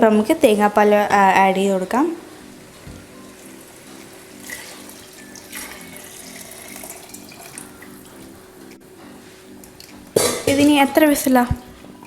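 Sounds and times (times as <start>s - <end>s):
liquid pouring into pot: 2.6s - 8.2s.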